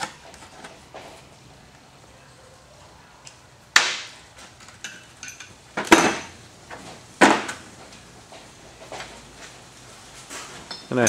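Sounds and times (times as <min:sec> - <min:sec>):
metal tools clanking: 0:04.6 - 0:06.4.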